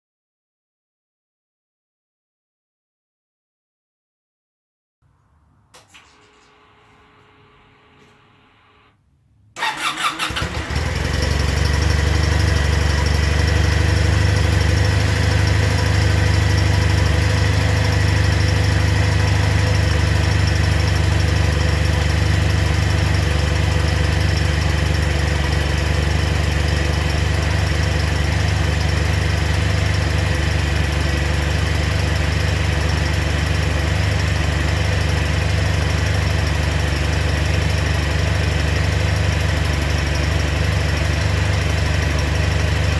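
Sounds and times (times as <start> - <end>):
motorcycle engine cranking and idling: 9.6 - 42.9.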